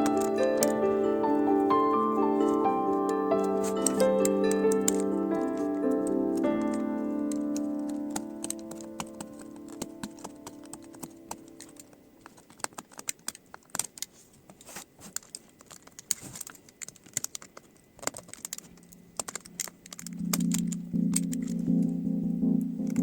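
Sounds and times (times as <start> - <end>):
laptop parts clicking: 0.0 - 0.8, 3.1 - 21.9
background music: 0.0 - 11.9, 20.0 - 23.0.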